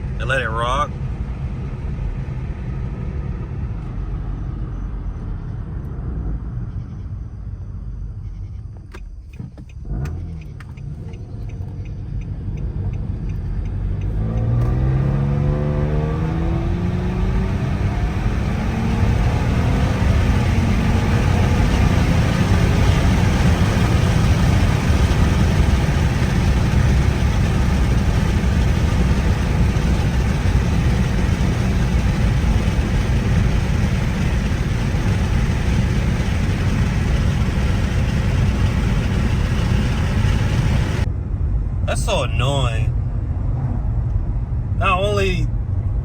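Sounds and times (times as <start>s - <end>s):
road noise: 0.0s - 46.0s
car engine accelerating: 9.2s - 41.1s.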